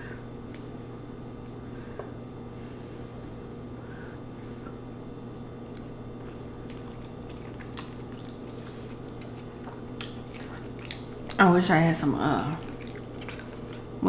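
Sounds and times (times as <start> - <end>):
steady low hum: 0.0 - 14.0
wet chewing: 5.6 - 14.0.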